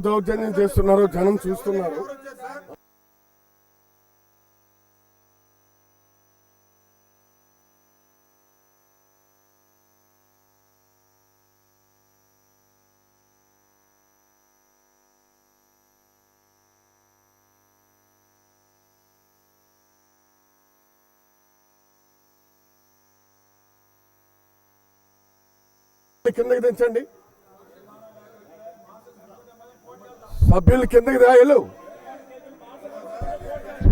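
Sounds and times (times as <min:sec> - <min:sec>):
faint electrical hum: 0:26.3 - 0:33.9.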